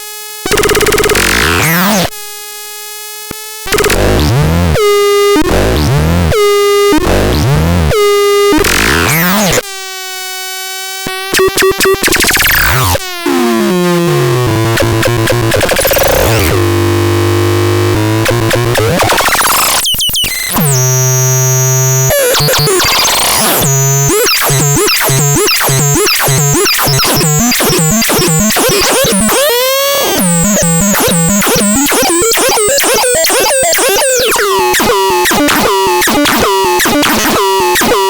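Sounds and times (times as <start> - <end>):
buzzy synthesizer tones: 11.3 - 38.0.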